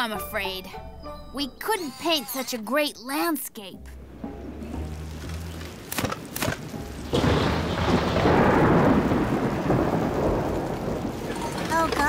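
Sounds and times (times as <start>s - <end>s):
rain: 4.0s - 12.0s
sharp cracks: 4.9s - 12.0s
thunder: 6.0s - 12.0s.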